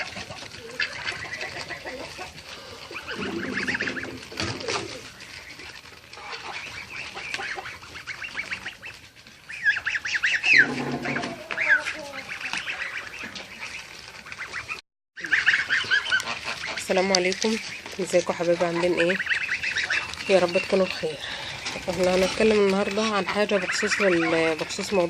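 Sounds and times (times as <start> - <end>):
ducks quacking: 0.0 - 25.0
geese honking: 0.0 - 25.0.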